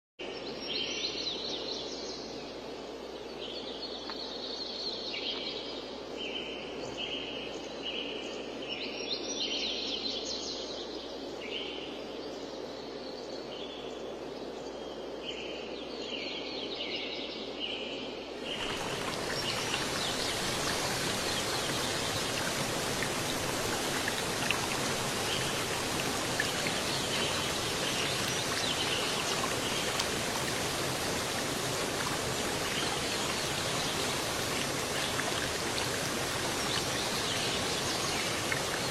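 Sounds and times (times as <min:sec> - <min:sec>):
birds chirping and trilling: 0:18.5 - 0:38.9.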